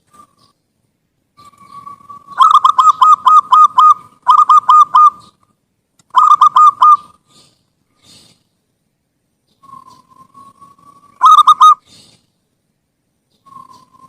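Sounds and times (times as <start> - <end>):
dove cooing: 1.4 - 5.4, 6.1 - 7.5, 9.6 - 12.0.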